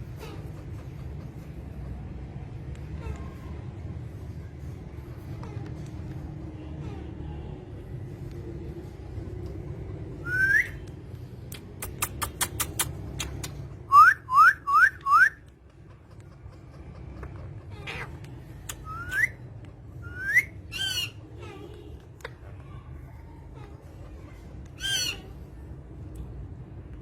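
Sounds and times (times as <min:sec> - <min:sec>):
short rising whistles: 0:10.2 - 0:10.8.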